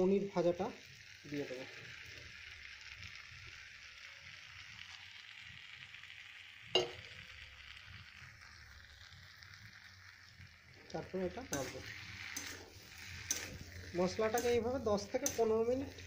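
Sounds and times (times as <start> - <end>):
spices sizzling in oil: 0.0 - 16.0
steel spatula turning food: 10.9 - 16.0.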